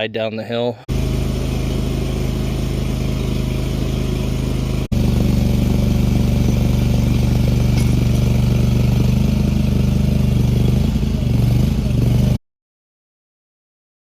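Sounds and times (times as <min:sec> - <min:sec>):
small engine running: 0:00.9 - 0:12.4.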